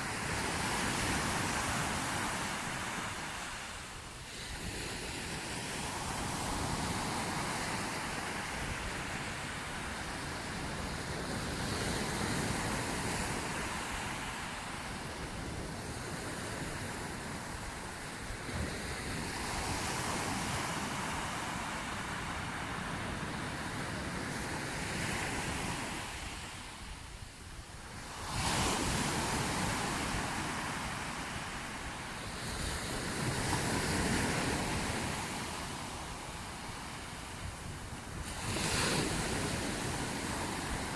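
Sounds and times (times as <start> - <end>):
sea waves washing ashore: 0.0 - 40.9.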